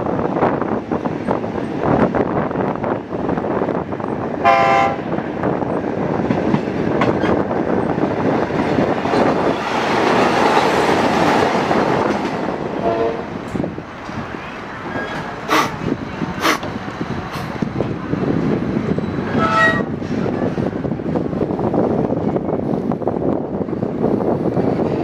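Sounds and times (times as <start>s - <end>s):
passing railcar: 0.0s - 25.0s
rushing wind: 0.0s - 25.0s
train wheels on rails: 0.0s - 25.0s
train horn blast: 4.4s - 5.1s, 12.8s - 13.3s, 19.3s - 19.9s.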